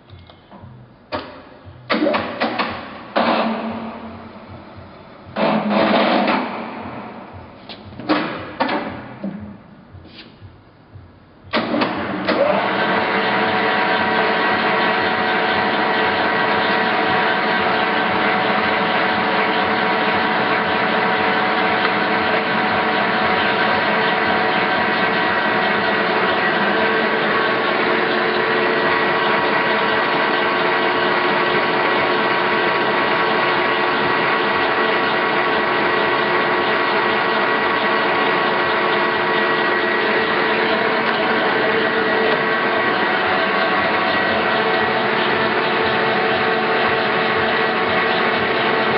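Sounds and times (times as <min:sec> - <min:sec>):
lathe motor whine and hum: 0:11.5 - 0:48.9.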